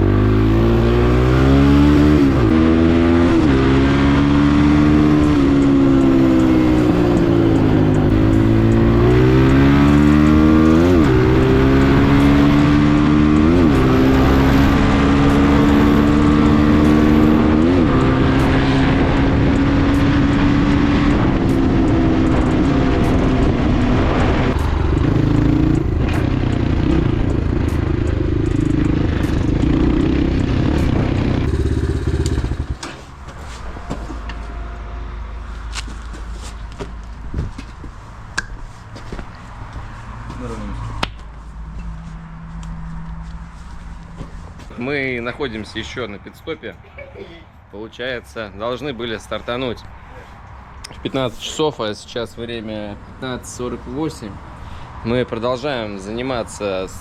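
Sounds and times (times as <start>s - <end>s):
motorcycle engine revving: 0.0s - 33.2s.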